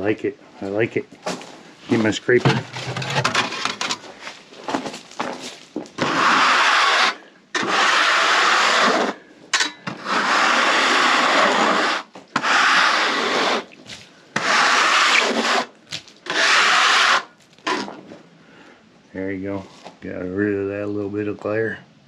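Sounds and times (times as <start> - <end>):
hand scraper scraping wet wood: 2.4 - 4.0, 6.0 - 9.2, 9.9 - 18.0.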